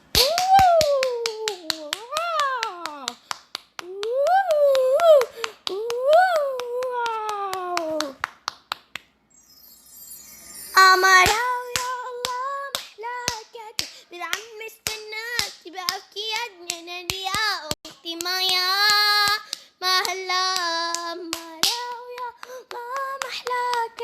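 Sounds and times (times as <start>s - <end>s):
hand claps: 0.1s - 9.2s, 11.2s - 24.0s
child singing: 10.7s - 24.0s.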